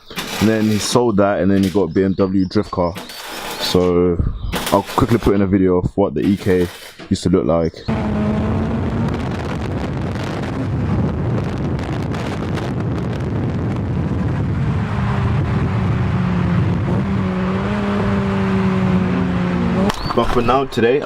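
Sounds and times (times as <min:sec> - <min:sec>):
wind noise on microphone: 0:03.7 - 0:05.5, 0:07.9 - 0:20.5
car engine droning: 0:07.9 - 0:11.5, 0:12.2 - 0:20.8.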